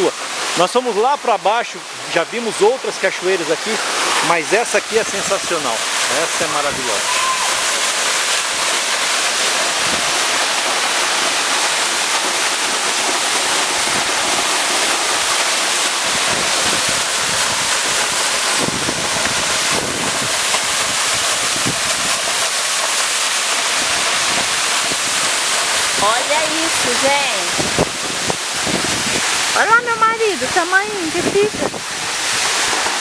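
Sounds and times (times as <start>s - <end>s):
waterfall rushing: 0.0s - 33.0s
wind buffeting microphone: 9.7s - 10.4s, 16.0s - 22.4s, 23.8s - 33.0s.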